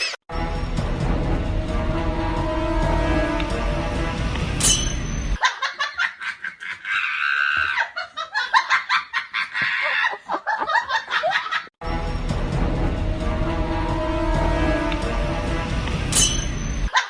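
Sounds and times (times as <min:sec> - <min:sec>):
background music: 0:00.3 - 0:05.4, 0:11.8 - 0:16.9
person laughing high-pitched: 0:05.4 - 0:11.7.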